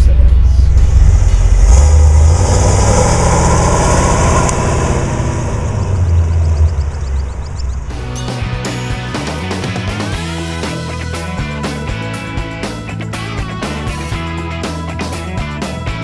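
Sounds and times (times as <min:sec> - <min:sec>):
car engine rumbling: 0:00.0 - 0:10.4
rock music with guitar: 0:07.9 - 0:16.0.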